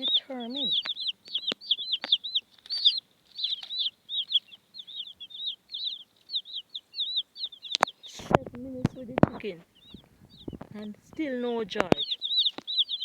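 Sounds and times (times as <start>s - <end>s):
chicks peeping: 0.0s - 13.0s
sharp taps: 7.7s - 12.7s.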